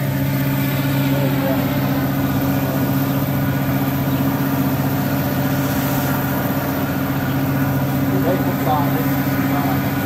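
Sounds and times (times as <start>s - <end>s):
moving train running noise: 0.0s - 10.0s
train engine droning: 0.0s - 10.0s.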